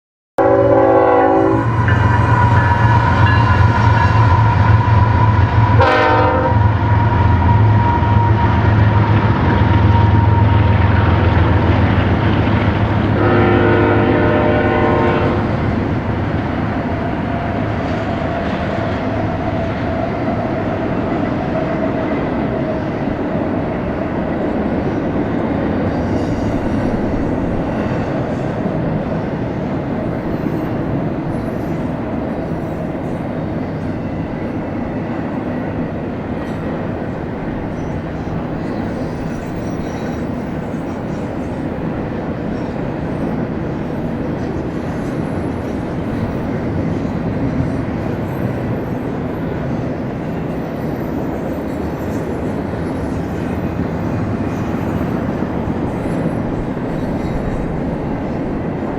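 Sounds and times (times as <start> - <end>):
freight train rumbling past: 0.4 - 58.9
high wheel squeal: 1.6 - 5.7, 6.6 - 11.0, 37.6 - 41.6.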